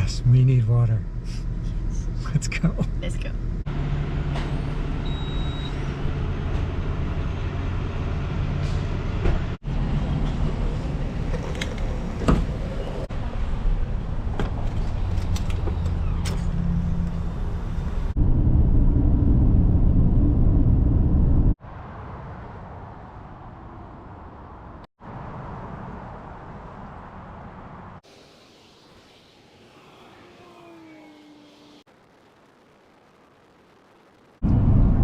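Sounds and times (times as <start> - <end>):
road noise: 0.0 - 35.0
loud low rumble: 17.5 - 21.6, 34.2 - 35.0.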